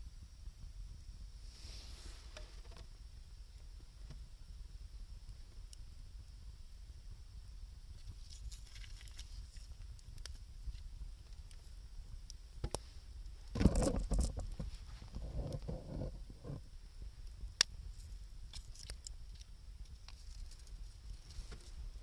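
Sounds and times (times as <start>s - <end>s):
wood fire crackling: 0.5s - 22.0s
muffled uneven rumbling: 12.8s - 16.7s.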